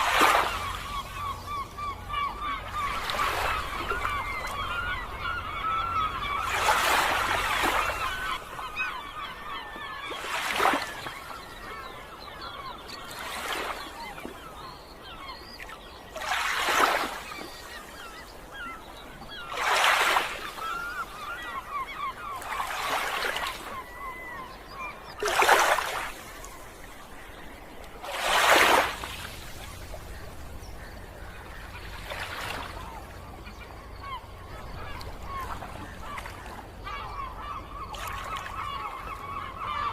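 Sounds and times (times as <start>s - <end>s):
sea waves washing onto shore: 0.0s - 1.6s, 27.7s - 30.9s
birds chirping: 0.0s - 39.9s.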